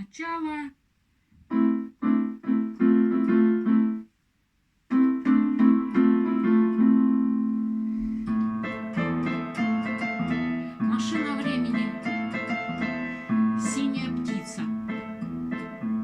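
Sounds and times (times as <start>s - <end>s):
piano keyboard chords: 1.4s - 4.2s, 4.9s - 16.0s.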